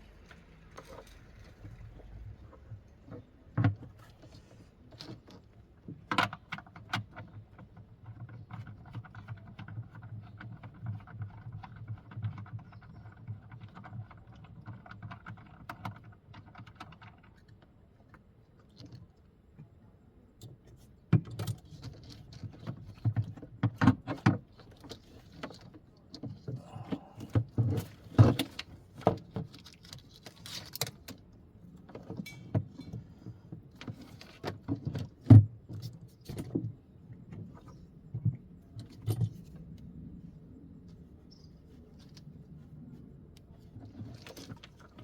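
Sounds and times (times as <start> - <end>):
metal tools clinking and knocking: 32.2 - 33.0.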